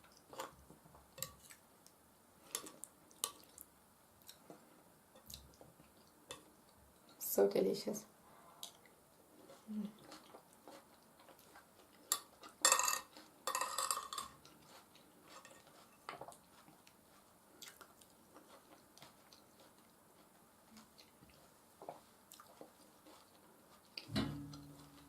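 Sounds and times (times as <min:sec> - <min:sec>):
soft chewing: 0:00.0 - 0:07.2, 0:08.5 - 0:25.0
cutlery scraping on a plate: 0:15.3 - 0:16.1.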